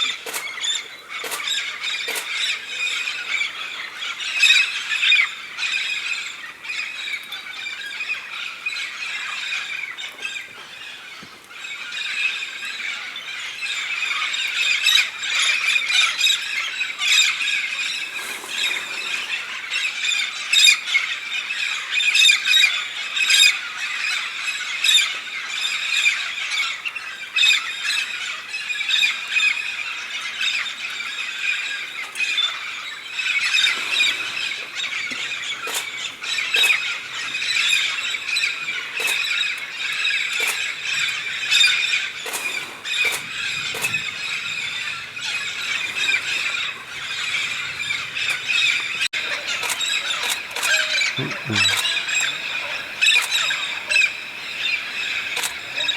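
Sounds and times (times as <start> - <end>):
flock of parrots squawking: 44.8 - 55.9.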